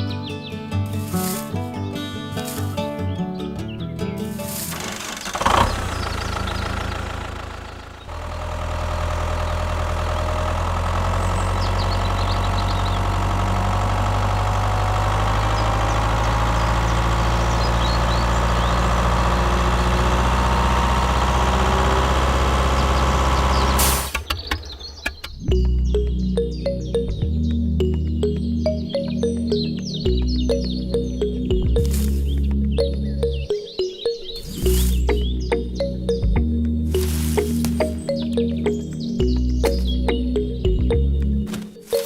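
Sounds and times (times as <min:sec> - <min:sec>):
engine idling: 0:04.2 - 0:33.5.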